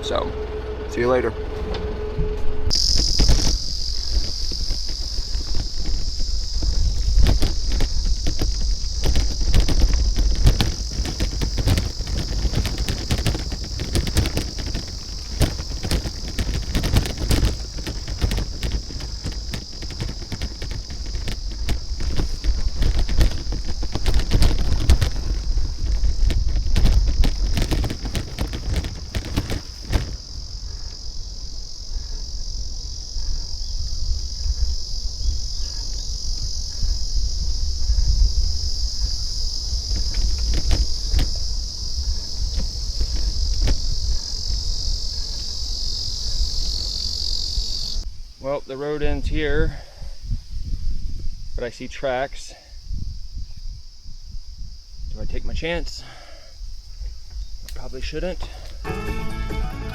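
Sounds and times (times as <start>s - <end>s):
sharp clicks and rattles: 0.0s - 32.2s
low rumble: 0.0s - 43.3s
high-pitched insect chorus: 0.0s - 59.9s.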